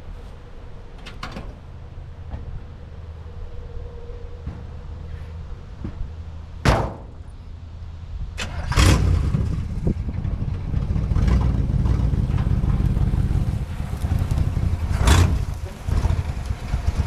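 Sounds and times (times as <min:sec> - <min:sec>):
pickup engine running: 0:04.5 - 0:17.0
door slamming shut: 0:06.6 - 0:07.2.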